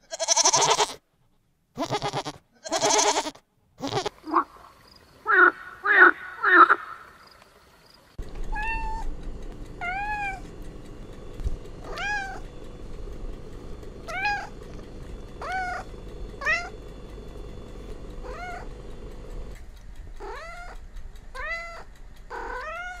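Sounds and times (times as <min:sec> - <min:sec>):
steady low hum: 0:04.0 - 0:23.0
kittens meowing: 0:08.5 - 0:09.1, 0:11.8 - 0:12.5, 0:14.0 - 0:14.7, 0:15.4 - 0:16.8, 0:18.2 - 0:18.7, 0:20.2 - 0:20.8, 0:21.4 - 0:23.0.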